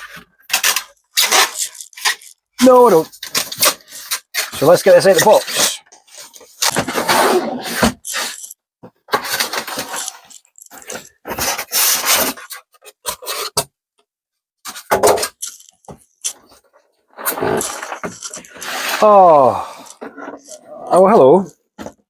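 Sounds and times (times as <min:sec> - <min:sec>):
cardboard rubbing and scraping: 0:00.0 - 0:13.5, 0:17.2 - 0:21.0.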